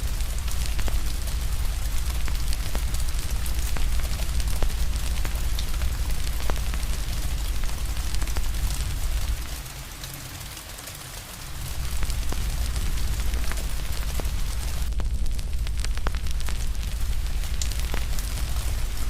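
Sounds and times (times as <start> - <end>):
fire crackling: 0.0 - 9.8, 11.4 - 19.0
rain hiss: 0.0 - 19.0
deep low rumble: 11.6 - 19.0.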